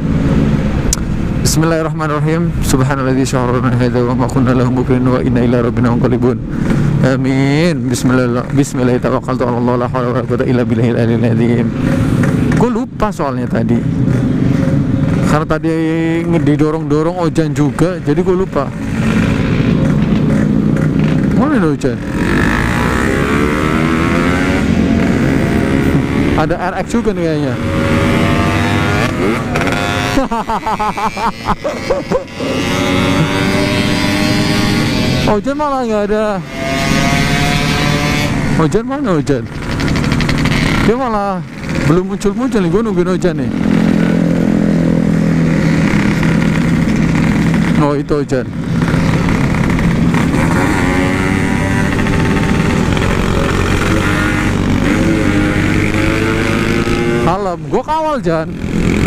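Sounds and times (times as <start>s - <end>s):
two-stroke motorcycle engine running: 27.6s - 35.2s, 39.4s - 59.0s.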